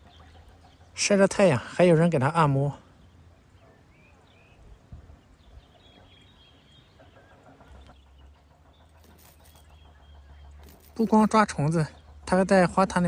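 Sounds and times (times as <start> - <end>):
faint bird chirps: 2.7 - 12.4.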